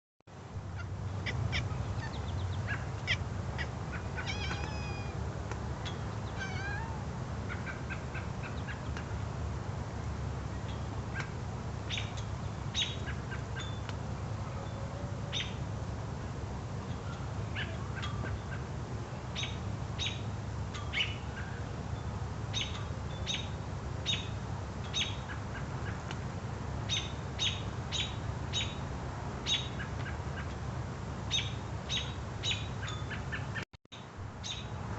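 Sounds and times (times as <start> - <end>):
birds chirping: 0.7 - 9.2, 10.5 - 13.9, 22.5 - 26.1, 26.8 - 30.6, 31.3 - 33.6.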